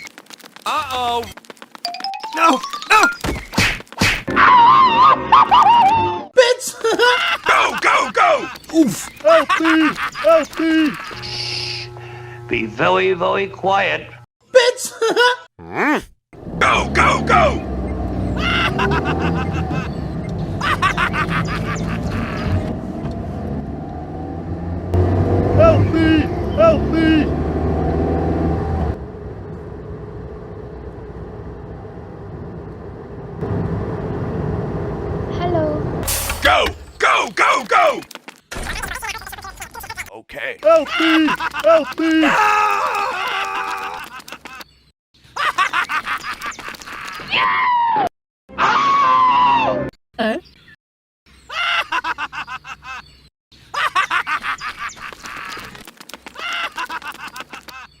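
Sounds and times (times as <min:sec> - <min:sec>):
vehicle engine running: 0:10.9 - 0:14.2, 0:16.4 - 0:36.9.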